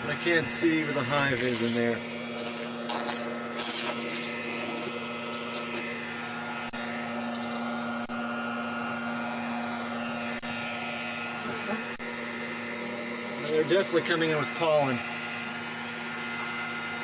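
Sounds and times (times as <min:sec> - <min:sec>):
honeybees buzzing: 0:00.3 - 0:06.7.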